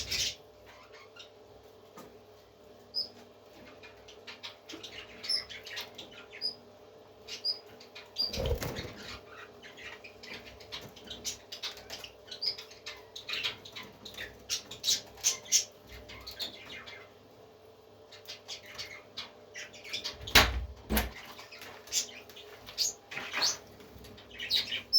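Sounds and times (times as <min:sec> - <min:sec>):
parrots chirping and squeaking: 0:00.0 - 0:01.3, 0:02.9 - 0:06.6, 0:07.3 - 0:17.1.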